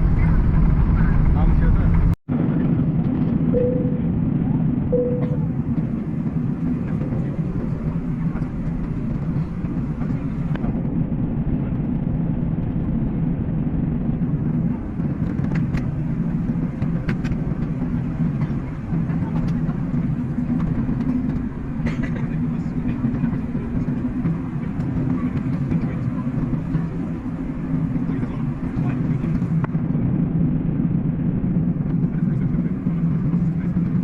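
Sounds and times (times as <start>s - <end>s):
vehicle low rumble: 0.0s - 34.0s
short faint tones: 3.6s - 4.2s, 5.0s - 5.5s.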